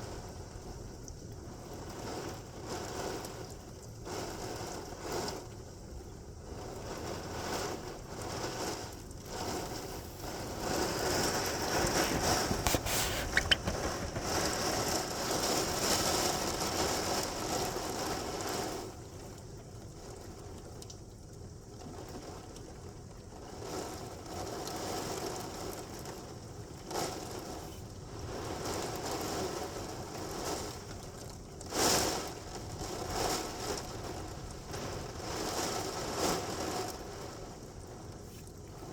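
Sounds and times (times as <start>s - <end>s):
heavy rain falling: 6.4s - 20.8s, 21.7s - 38.2s.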